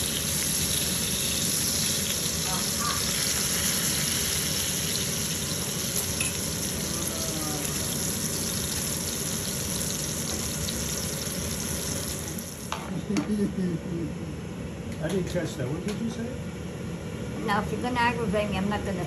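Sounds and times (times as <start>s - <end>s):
chicken frying in oil: 0.0s - 12.7s.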